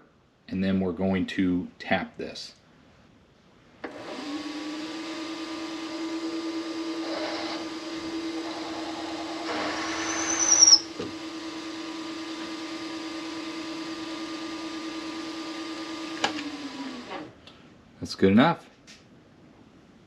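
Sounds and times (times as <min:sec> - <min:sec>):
mill spindle running: 0:03.8 - 0:17.3
metal cutting squeal: 0:08.5 - 0:10.9.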